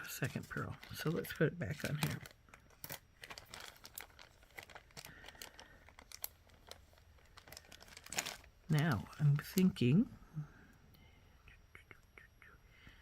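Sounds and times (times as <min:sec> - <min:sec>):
packaging crinkling: 0:00.0 - 0:10.0.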